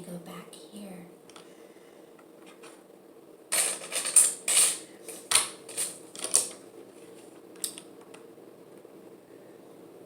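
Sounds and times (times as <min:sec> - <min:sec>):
plastic bricks clattering: 0:03.5 - 0:06.6.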